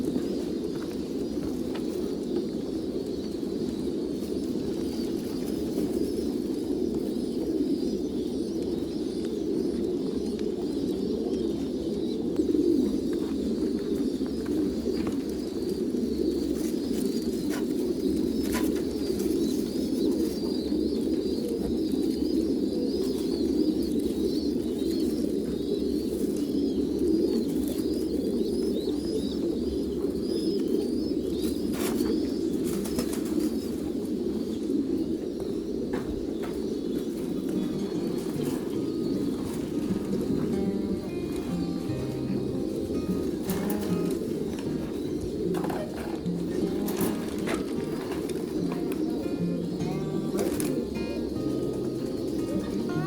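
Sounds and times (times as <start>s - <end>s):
pigeons cooing: 0.0s - 53.0s
rapid high chirping: 37.5s - 53.0s.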